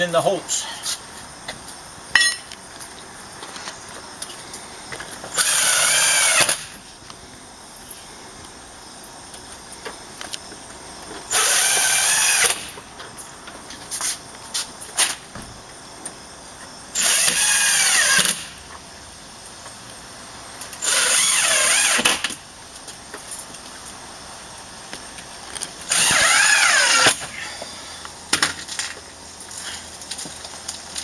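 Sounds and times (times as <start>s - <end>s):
cordless drill driving screws: 5.3s - 6.7s, 11.3s - 12.7s, 17.0s - 18.5s, 20.8s - 22.3s, 25.9s - 27.3s.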